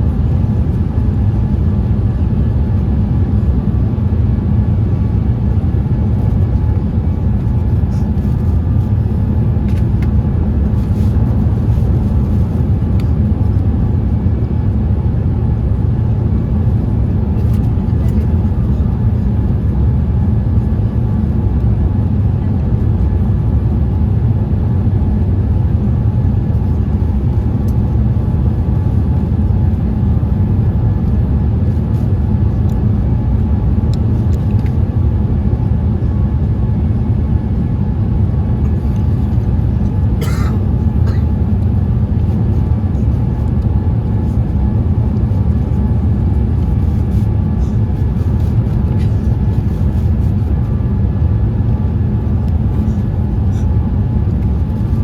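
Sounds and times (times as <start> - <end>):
aircraft cabin engine roar: 0.0 - 55.0.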